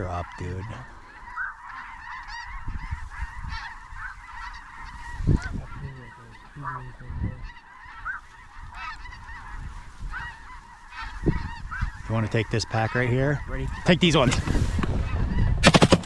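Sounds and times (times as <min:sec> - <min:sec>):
geese honking: 0:00.0 - 0:15.6.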